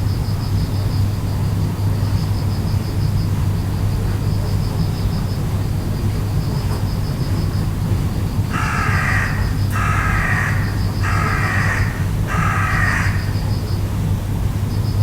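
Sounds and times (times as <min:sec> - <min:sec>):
bird harsh call: 0:08.5 - 0:13.7.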